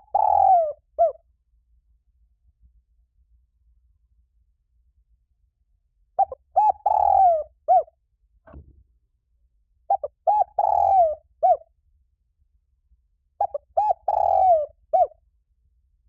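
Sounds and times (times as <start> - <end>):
dove cooing: 0.0 - 1.2, 6.2 - 7.9, 9.9 - 11.6, 13.4 - 15.2.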